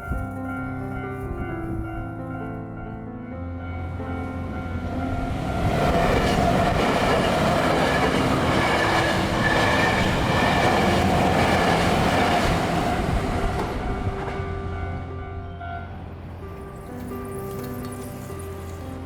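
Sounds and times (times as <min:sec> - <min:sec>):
electric train wheels clattering on rails: 0:03.8 - 0:19.0.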